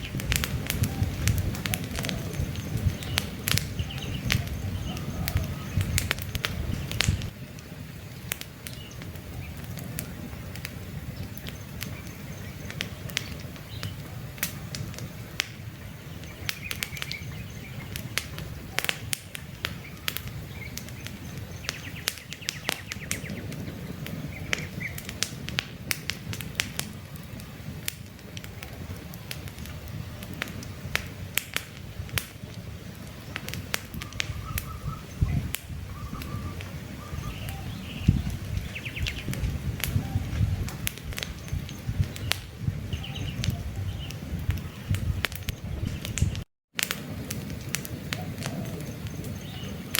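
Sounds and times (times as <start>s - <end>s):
campfire crackling and popping: 0.0s - 49.9s
bird chirps: 1.8s - 6.1s, 15.8s - 18.2s, 19.8s - 23.5s, 34.0s - 39.3s, 41.2s - 46.3s, 48.2s - 49.9s.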